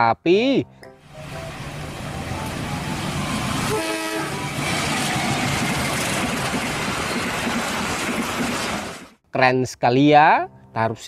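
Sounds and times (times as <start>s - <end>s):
train engine and wheels rumbling: 1.0s - 9.2s
train horn blast: 3.6s - 4.8s.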